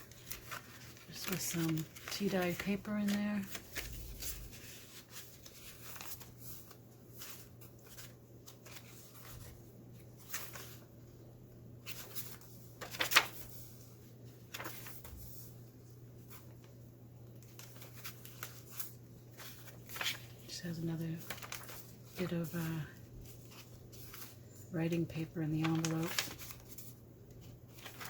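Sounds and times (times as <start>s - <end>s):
paper pages rustling: 0.0s - 11.2s, 11.8s - 28.0s.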